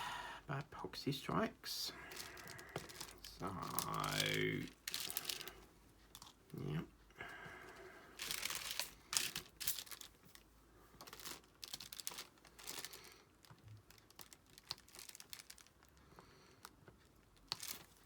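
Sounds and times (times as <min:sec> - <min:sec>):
plastic crinkling: 0:01.9 - 0:06.4, 0:07.7 - 0:16.0, 0:16.6 - 0:18.0.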